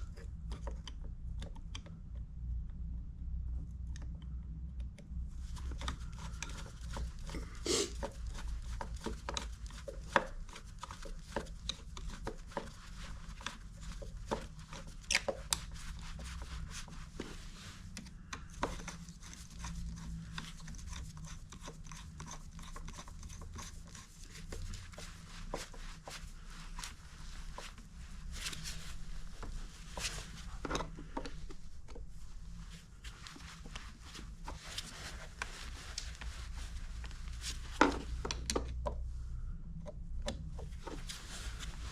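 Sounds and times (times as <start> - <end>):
hands clicking and tapping tools: 4.8 - 17.3, 17.9 - 26.2, 37.0 - 39.0
low steady rumble: 23.5 - 41.9.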